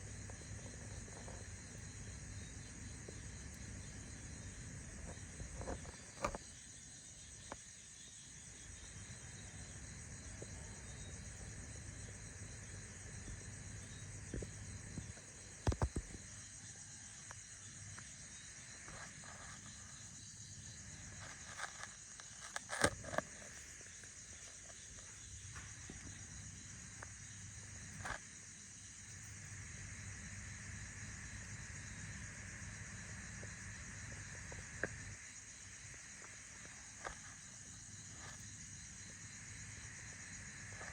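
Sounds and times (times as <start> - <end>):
faint high-pitched hiss: 0.0 - 40.9
sharp clicks and crackles: 21.2 - 23.6.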